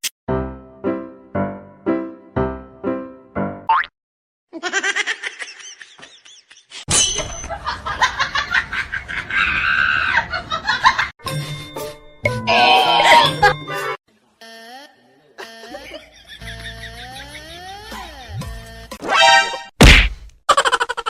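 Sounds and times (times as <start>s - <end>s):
music: 0.3s - 3.7s, 11.2s - 14.0s, 17.9s - 19.7s
people laughing: 4.6s - 6.8s, 7.4s - 11.1s, 13.0s - 14.0s, 15.4s - 18.4s.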